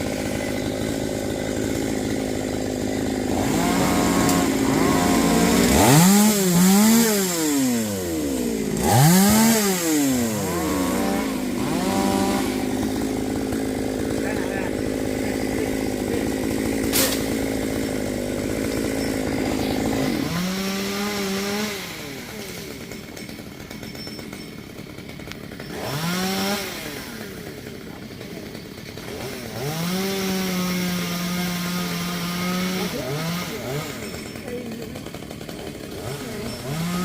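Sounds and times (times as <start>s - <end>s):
wood cracking: 0.0s - 20.3s
chainsaw cutting and revving: 0.0s - 37.0s.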